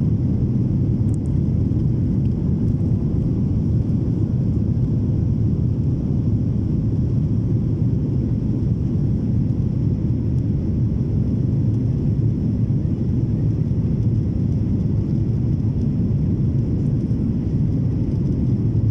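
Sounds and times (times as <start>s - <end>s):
jet engine rumble in cabin: 0.0s - 18.9s.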